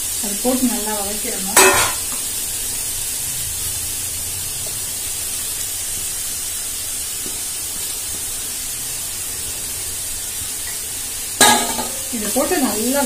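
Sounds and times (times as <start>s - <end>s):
carrots sizzling in a pan: 0.0s - 13.0s.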